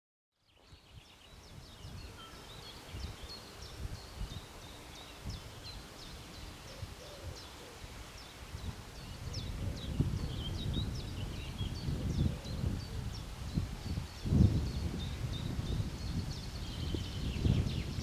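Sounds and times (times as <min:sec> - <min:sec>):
gusty wind rumble: 0:08.6 - 0:18.0.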